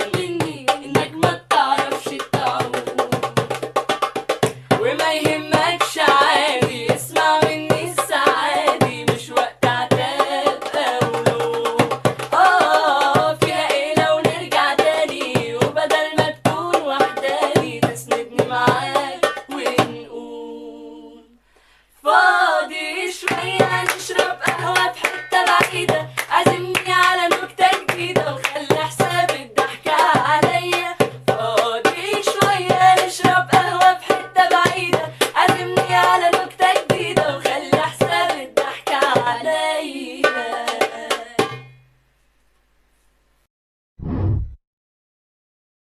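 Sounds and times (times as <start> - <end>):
women singing: 0.0 - 3.6, 4.7 - 21.4, 22.0 - 41.5
hand-struck percussion beat: 0.0 - 20.0, 23.2 - 39.4.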